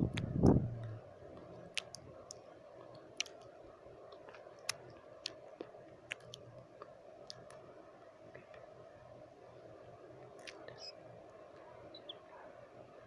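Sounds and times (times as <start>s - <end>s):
white noise hiss: 0.0s - 13.0s
tongue and lip clicks: 1.7s - 3.5s, 4.1s - 7.6s.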